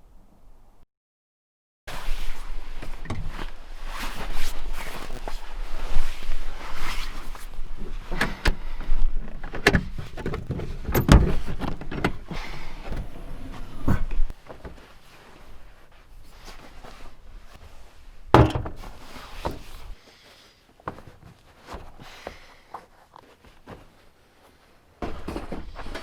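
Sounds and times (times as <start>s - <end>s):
knocks and thuds: 18.3s - 18.9s.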